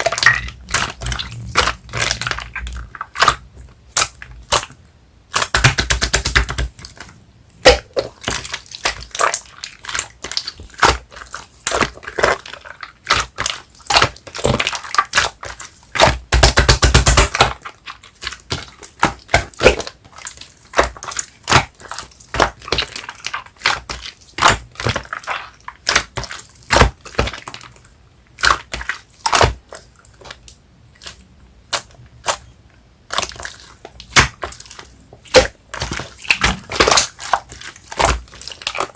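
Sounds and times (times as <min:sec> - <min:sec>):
slime squelching pops and crackles: 0:33.1 - 0:38.9.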